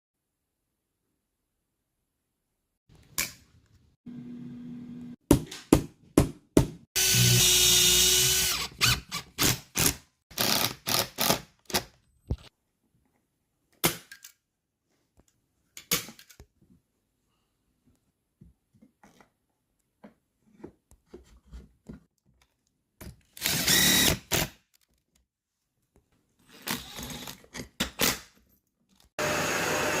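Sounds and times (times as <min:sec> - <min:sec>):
power drill driving screws: 0:07.0 - 0:11.4, 0:23.4 - 0:24.6, 0:26.5 - 0:27.4, 0:29.2 - 0:30.0.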